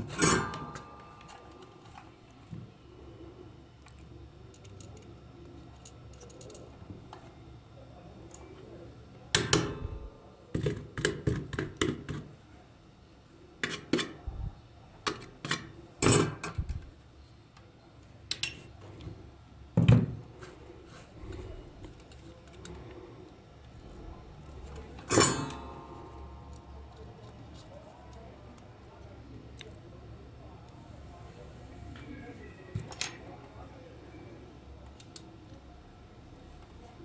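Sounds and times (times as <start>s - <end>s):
tools clicking and clattering: 5.7s - 6.7s, 24.4s - 27.7s.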